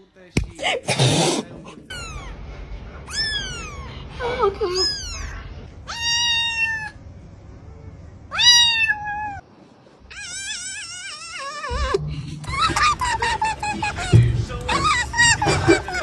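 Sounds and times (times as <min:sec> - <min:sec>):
cat meowing: 0:00.9 - 0:02.4, 0:03.1 - 0:04.0, 0:04.7 - 0:07.0, 0:08.3 - 0:09.4, 0:10.1 - 0:12.7.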